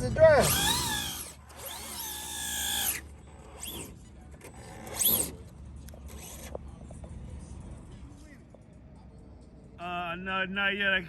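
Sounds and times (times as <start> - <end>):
rc car motor revving: 0.3 - 6.6.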